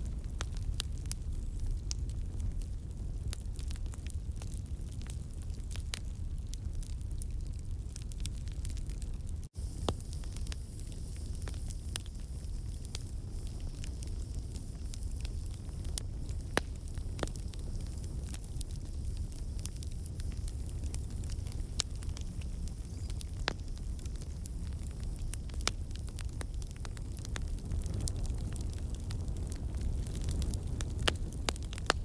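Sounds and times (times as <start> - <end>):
campfire crackling and popping: 0.0 - 32.0
low fire rumble: 0.0 - 32.0
faint hiss: 9.5 - 28.1.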